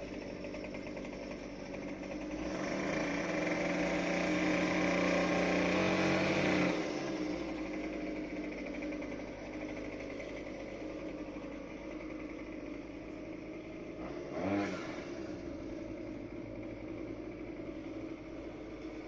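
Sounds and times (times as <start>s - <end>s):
small petrol engine running: 0.0s - 19.0s.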